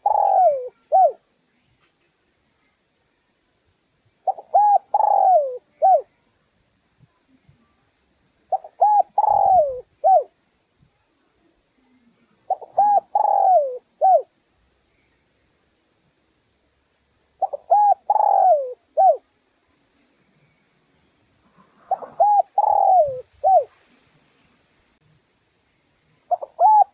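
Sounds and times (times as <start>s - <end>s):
dove cooing: 0.0s - 1.2s, 4.2s - 6.1s, 8.5s - 10.3s, 12.5s - 14.3s, 17.4s - 19.2s, 21.5s - 23.7s, 26.3s - 26.9s.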